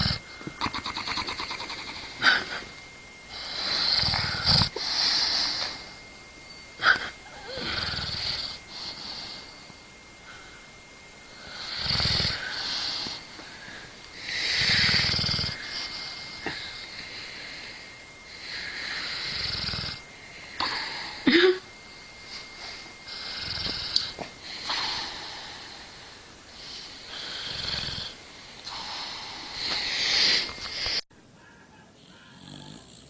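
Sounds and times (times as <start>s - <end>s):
dog snorting: 0.0s - 2.6s, 31.8s - 33.0s
dog snoring: 0.0s - 2.7s, 3.3s - 6.0s, 6.8s - 9.6s, 11.4s - 13.3s, 14.2s - 20.0s, 22.7s - 25.9s, 26.6s - 30.9s, 32.0s - 33.0s.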